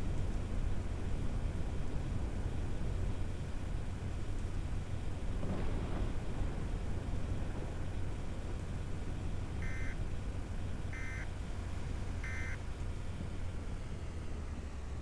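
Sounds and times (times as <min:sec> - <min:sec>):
short electronic beeps: 0:09.6 - 0:10.0, 0:11.0 - 0:11.3, 0:12.2 - 0:12.6.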